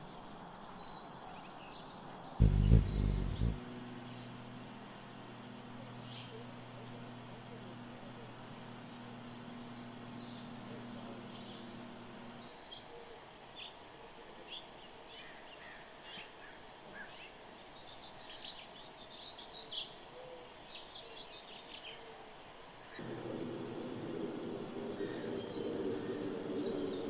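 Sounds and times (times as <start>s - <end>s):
small birds chirping: 0.0s - 13.8s, 22.9s - 27.0s
low steady hum: 2.4s - 12.5s, 23.0s - 27.0s.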